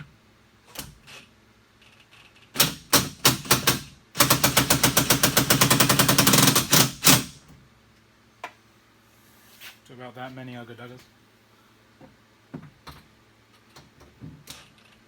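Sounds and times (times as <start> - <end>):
impact wrench hammering: 2.6 - 7.4.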